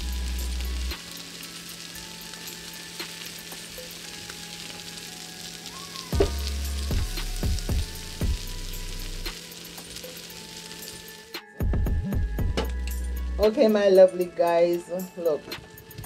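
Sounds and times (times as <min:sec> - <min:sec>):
food sizzling on a griddle pan: 0:00.0 - 0:11.4.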